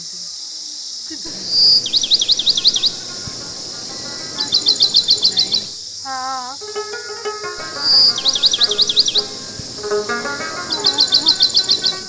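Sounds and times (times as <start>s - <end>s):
high insect-like hiss: 0.0s - 12.0s
songbird singing: 0.0s - 12.0s.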